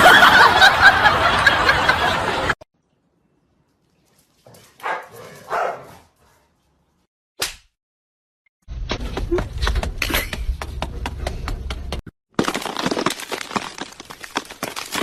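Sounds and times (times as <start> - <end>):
dog barking: 4.5 - 6.5.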